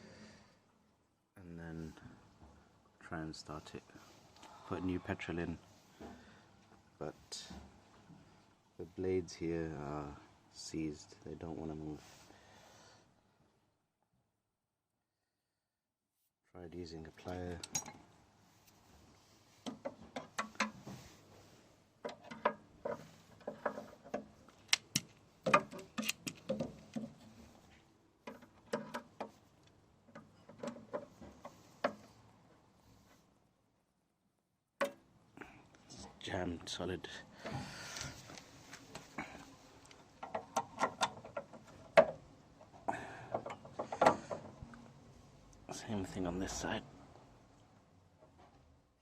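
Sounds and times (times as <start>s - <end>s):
metal parts clicking and knocking: 17.3s - 18.0s, 19.6s - 20.9s, 22.0s - 27.3s, 28.2s - 32.1s, 39.8s - 42.2s, 43.3s - 44.6s
metal clicks and scrapes: 22.0s - 27.4s.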